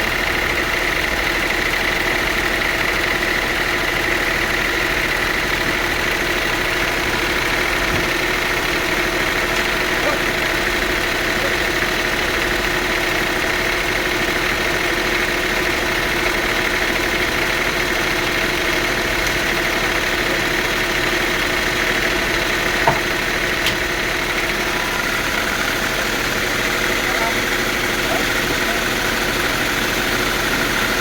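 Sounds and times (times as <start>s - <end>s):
sawmill machinery humming: 0.0s - 31.0s
steady machine whine: 0.0s - 31.0s
sharp knock: 22.8s - 23.1s.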